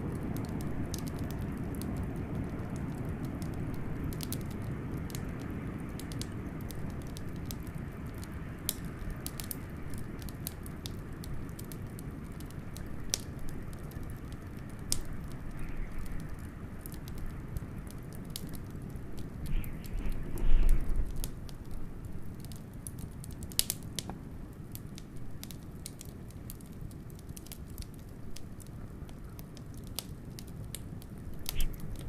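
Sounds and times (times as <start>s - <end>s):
wood fire crackling and popping: 0.0s - 32.0s
blizzard wind rushing: 18.9s - 21.4s.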